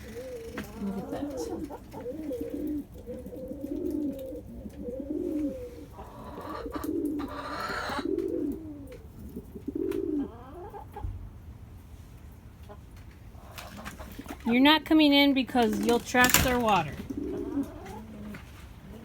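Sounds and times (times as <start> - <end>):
birds cooing: 0.0 - 11.1, 15.7 - 19.0.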